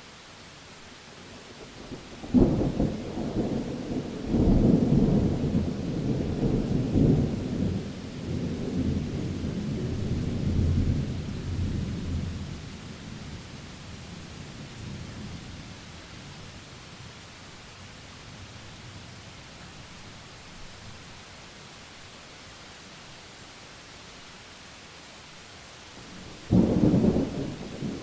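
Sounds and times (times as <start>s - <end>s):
rain hissing: 0.0s - 28.0s
thunder crack and rumble: 26.3s - 28.0s.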